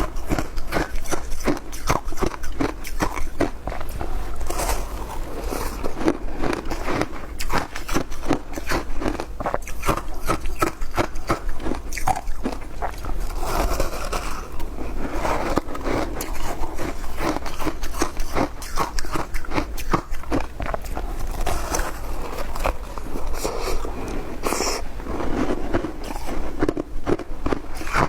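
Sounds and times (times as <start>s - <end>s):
ice being chewed: 0.0s - 28.0s.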